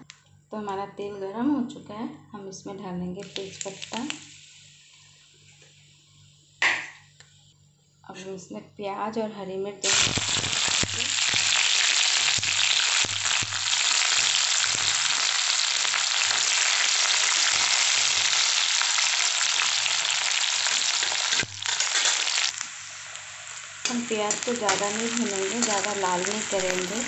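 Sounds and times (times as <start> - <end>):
onions sizzling in hot oil: 3.2 - 5.0, 9.8 - 27.0.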